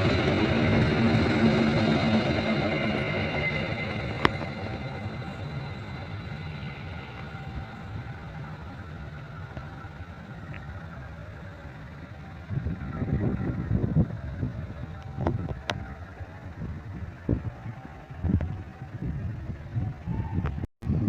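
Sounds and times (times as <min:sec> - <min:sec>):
diesel train rumble: 0:00.0 - 0:21.0.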